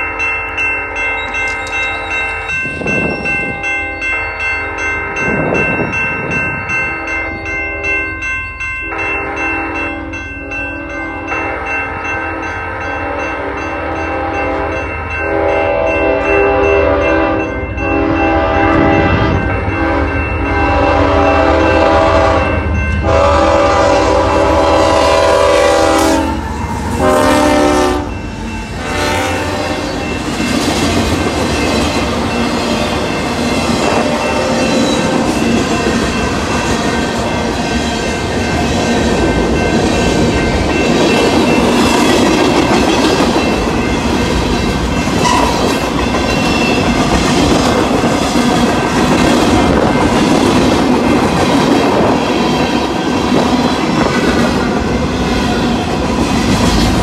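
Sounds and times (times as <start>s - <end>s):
crossing signal bell ringing: 0.0s - 56.4s
locomotive horn blasts: 11.3s - 28.2s, 28.8s - 30.0s, 45.2s - 45.6s.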